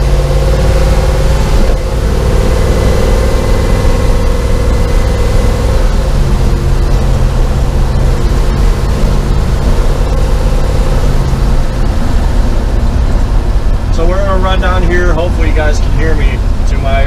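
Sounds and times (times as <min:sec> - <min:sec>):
pickup engine running while driving: 0:00.0 - 0:17.0.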